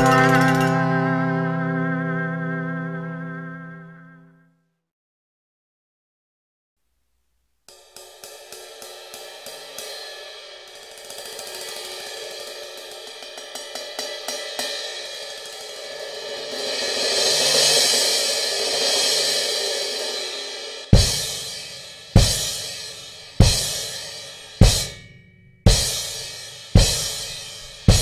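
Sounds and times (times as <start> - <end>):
crash cymbal strikes: 7.7 - 28.0.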